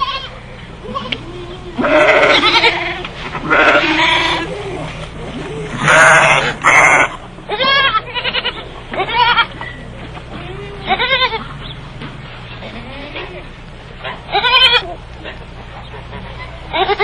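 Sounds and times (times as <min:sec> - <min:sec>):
livestock bleating: 0:00.0 - 0:04.9, 0:05.6 - 0:09.6, 0:10.3 - 0:11.6, 0:12.6 - 0:13.5, 0:14.3 - 0:15.0, 0:16.4 - 0:17.0.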